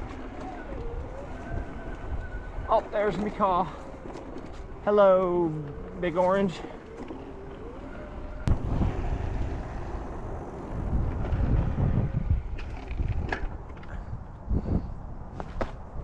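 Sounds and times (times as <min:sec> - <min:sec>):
tyres rolling on dirt: 0:00.0 - 0:14.1
wind buffeting microphone: 0:00.0 - 0:16.0.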